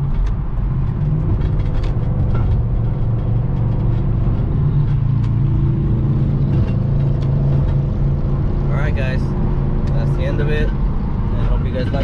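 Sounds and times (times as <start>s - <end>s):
car engine running: 0.0s - 12.0s
road noise: 0.0s - 12.0s.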